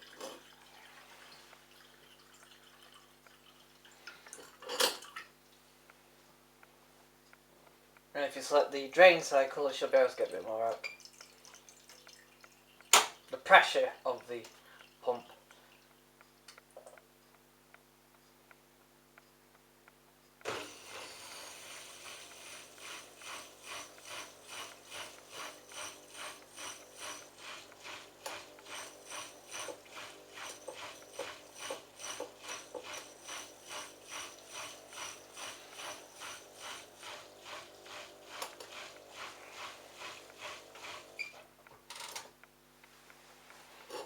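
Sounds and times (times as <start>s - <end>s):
washing machine pulsing whirr: 0.0s - 5.9s, 9.3s - 16.0s, 20.4s - 41.6s.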